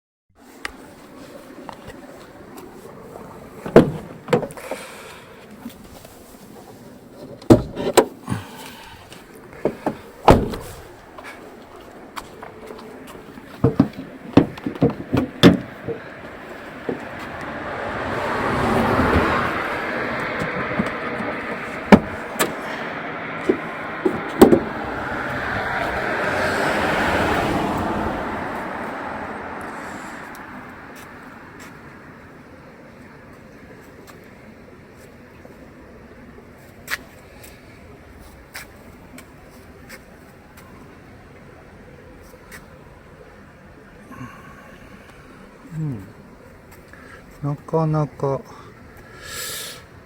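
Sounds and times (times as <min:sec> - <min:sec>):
rushing outdoor noise: 0:00.4 - 0:50.0
car doors shutting: 0:03.5 - 0:05.1, 0:07.2 - 0:11.3, 0:12.2 - 0:28.8
sharp clacks and knocks: 0:20.2 - 0:22.6.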